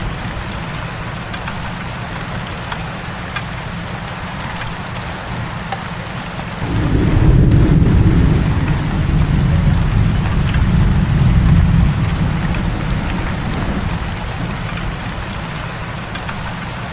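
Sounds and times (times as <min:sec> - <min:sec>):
heavy rain: 0:00.0 - 0:16.9
thunder rumbling: 0:06.6 - 0:16.8.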